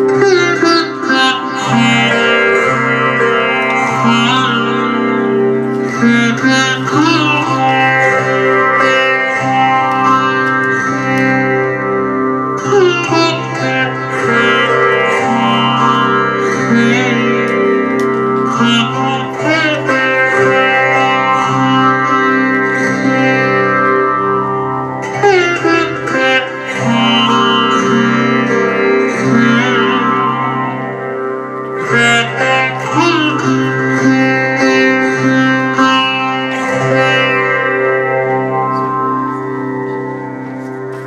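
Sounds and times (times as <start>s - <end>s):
sitar melody: 0.0s - 41.0s.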